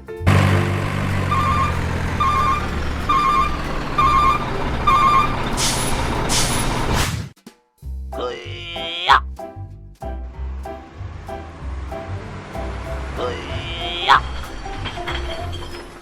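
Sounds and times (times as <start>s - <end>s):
truck engine running: 0.1s - 7.0s, 10.2s - 16.0s
reversing alarm beeping: 1.2s - 6.6s
air brake hisses: 1.3s - 7.3s.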